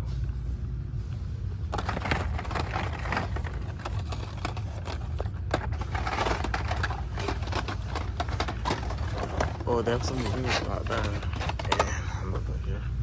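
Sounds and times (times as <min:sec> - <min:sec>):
steady low rumble: 0:00.0 - 0:13.0
clicks and rustles: 0:01.6 - 0:12.5.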